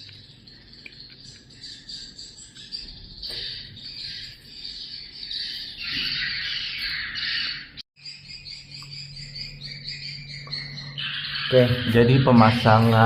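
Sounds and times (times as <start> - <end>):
swiftlets twittering: 8.1 - 13.0.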